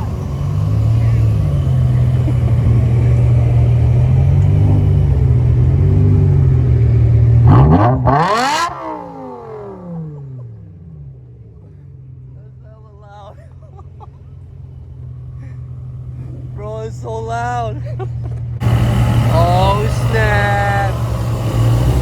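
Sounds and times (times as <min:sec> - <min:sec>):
car engine revving: 0:00.0 - 0:12.6, 0:17.9 - 0:22.0.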